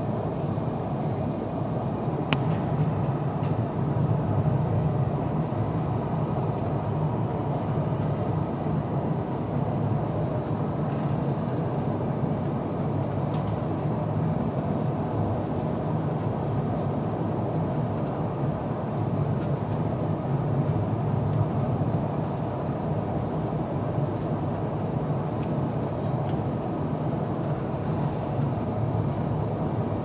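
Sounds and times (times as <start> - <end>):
airplane cabin rumble: 24.0 - 30.0.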